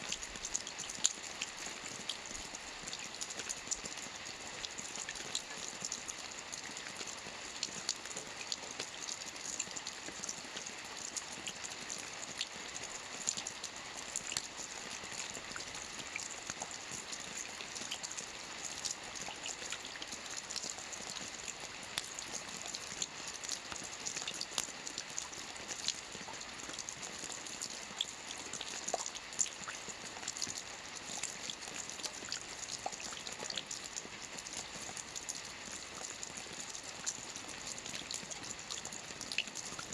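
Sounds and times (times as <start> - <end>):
rain falling on a lake: 0.0 - 39.9.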